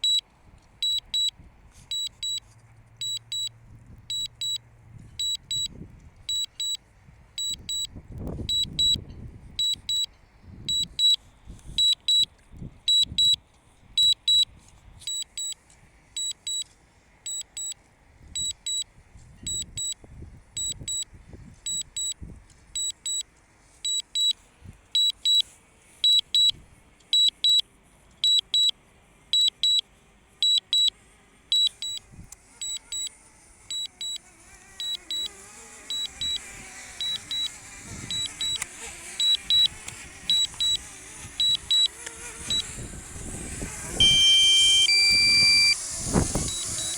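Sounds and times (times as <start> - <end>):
high-pitched double beeps: 0.0 - 0.2, 0.8 - 1.3, 1.9 - 2.4, 4.1 - 4.6, 5.2 - 5.7, 6.3 - 6.8, 7.4 - 9.0, 9.6 - 10.1, 10.7 - 11.2, 11.8 - 12.3, 12.9 - 13.4, 14.0 - 14.4, 19.4 - 20.0, 20.6 - 21.0, 25.0 - 25.4, 44.0 - 45.8.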